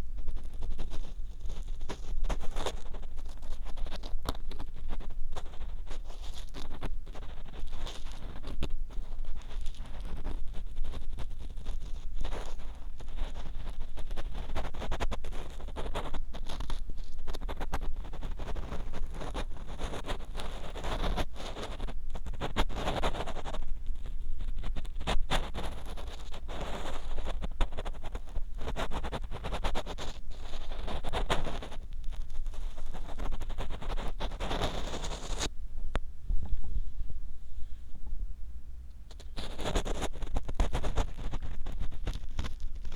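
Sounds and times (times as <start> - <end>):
ear pick scraping in ear: 25.2 - 36.9
steady low rumble: 35.5 - 39.6.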